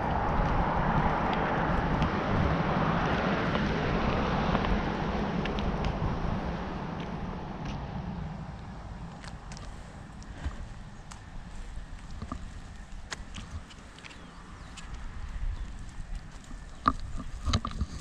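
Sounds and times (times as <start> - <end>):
vehicle passing on wet road: 0.0 - 9.8.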